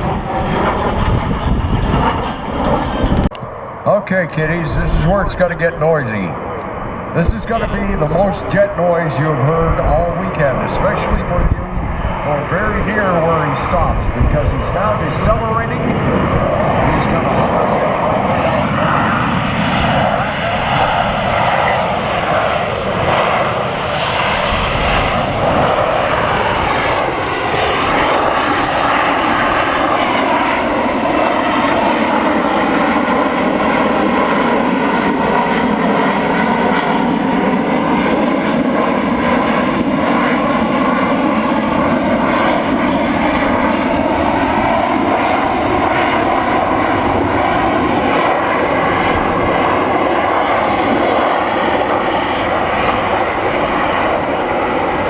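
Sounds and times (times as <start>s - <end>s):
jet engine roaring: 0.0s - 55.0s.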